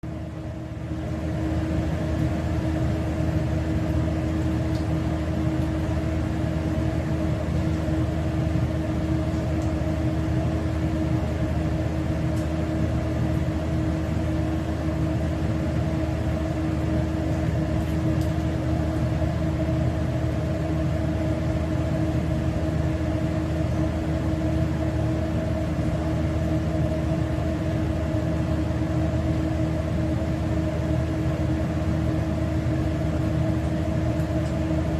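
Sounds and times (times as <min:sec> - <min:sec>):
machine hum droning: 0:00.0 - 0:34.9.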